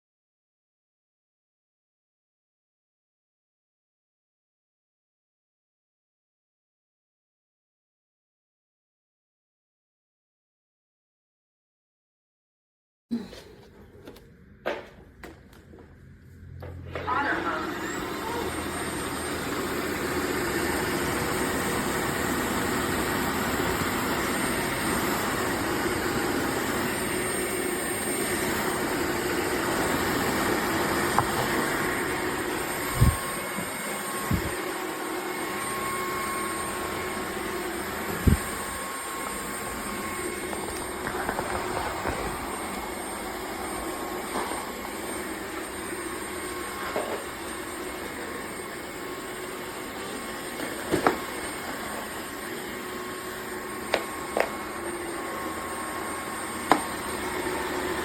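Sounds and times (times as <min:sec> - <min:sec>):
vacuum mop motor running: 0:16.4 - 0:58.0.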